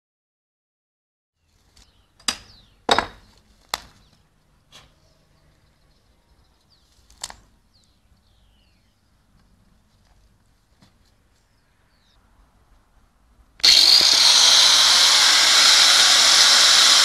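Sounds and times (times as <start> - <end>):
sharp knocks of hard objects: 2.2 - 3.9.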